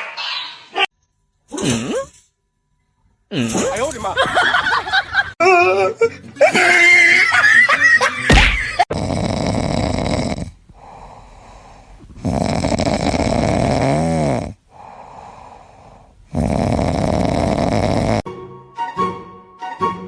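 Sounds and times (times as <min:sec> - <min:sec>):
animal snoring: 0:01.5 - 0:02.2, 0:08.9 - 0:18.2
music: 0:18.3 - 0:20.0.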